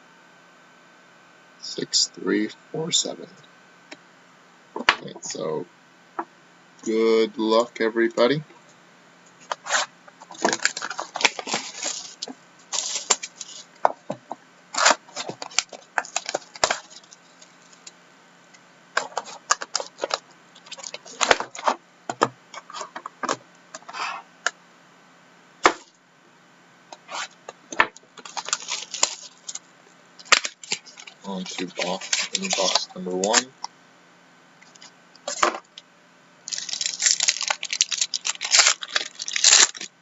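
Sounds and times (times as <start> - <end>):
packaging crackling and tearing: 9.4 - 13.8, 14.7 - 17.9, 19.0 - 21.7, 28.2 - 29.6, 30.2 - 33.5, 36.5 - 39.9.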